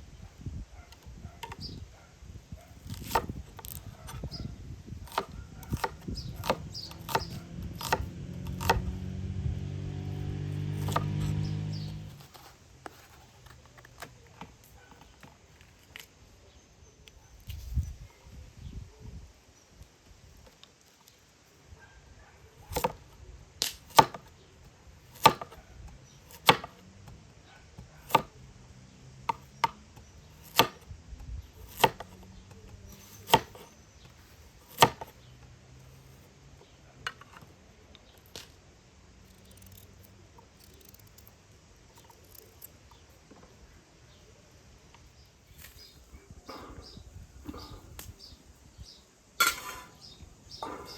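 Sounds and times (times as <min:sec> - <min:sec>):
knife chopping on cutting board: 0:05.1 - 0:08.9, 0:10.7 - 0:11.4, 0:25.2 - 0:25.6, 0:26.4 - 0:26.7, 0:30.4 - 0:30.8, 0:31.7 - 0:32.1, 0:34.7 - 0:35.1.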